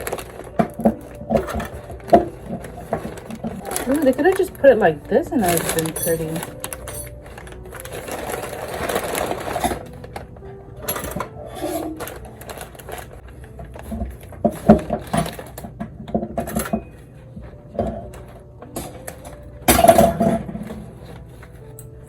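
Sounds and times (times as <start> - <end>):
roses rustling: 0.0 - 15.6.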